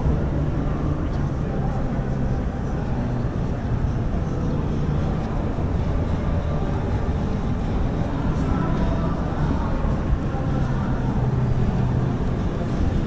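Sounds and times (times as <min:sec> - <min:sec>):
exhibition hall din: 0:00.0 - 0:13.0.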